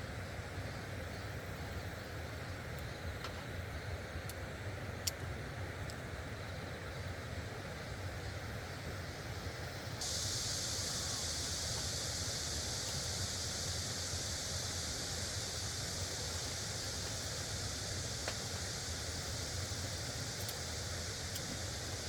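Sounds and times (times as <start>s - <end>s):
bright high hiss: 9.9s - 22.0s.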